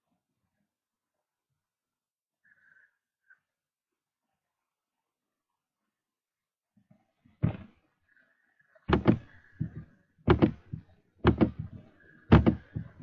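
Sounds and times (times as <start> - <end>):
sharp knocks: 7.4 - 7.7, 8.9 - 13.0.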